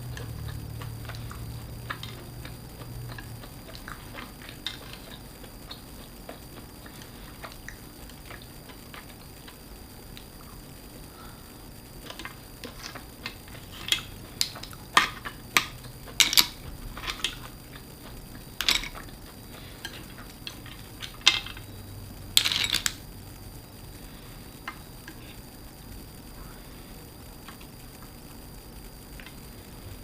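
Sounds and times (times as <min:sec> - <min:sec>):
utensils clinking on dishes: 0:13.6 - 0:17.5, 0:18.6 - 0:19.1, 0:19.8 - 0:21.6, 0:22.4 - 0:23.0.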